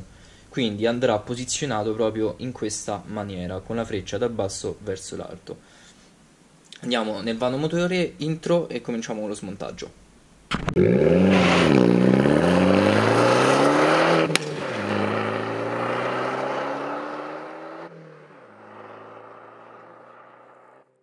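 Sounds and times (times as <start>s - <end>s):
sharp crack: 10.5s - 11.6s, 14.1s - 15.2s
car engine revving: 10.8s - 20.9s.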